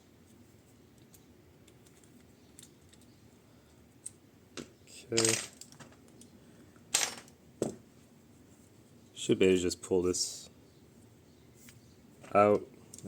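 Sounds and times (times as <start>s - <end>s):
clicks of metal parts handled: 4.0s - 6.3s.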